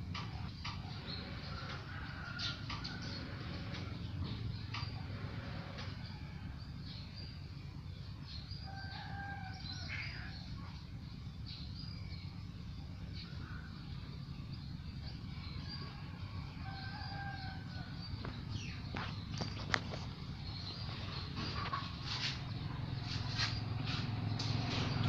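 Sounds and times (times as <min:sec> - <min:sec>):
birds chirping: 0:00.0 - 0:25.0
steady low rumble: 0:09.6 - 0:25.0.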